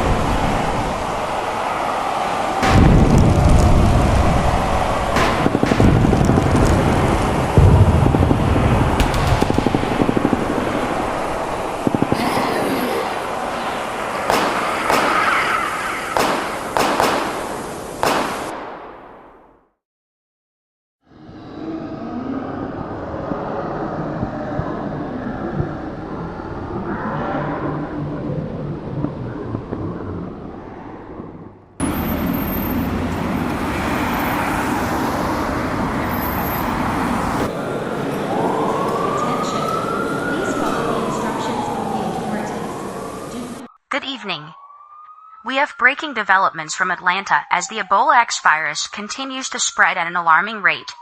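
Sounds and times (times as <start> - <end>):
city ambience rushing: 0.0 - 19.6, 27.6 - 50.9
sharp bangs: 2.6 - 19.5
vehicle engine hum: 31.6 - 43.6.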